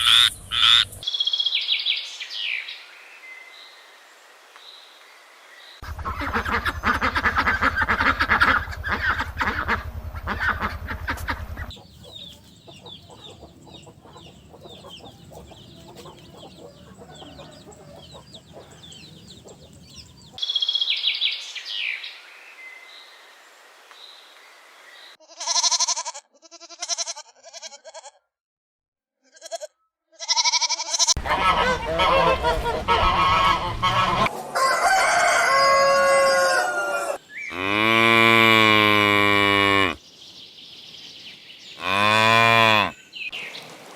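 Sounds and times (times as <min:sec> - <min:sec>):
chickens crowing and clucking: 0:05.8 - 0:20.4, 0:31.2 - 0:40.0.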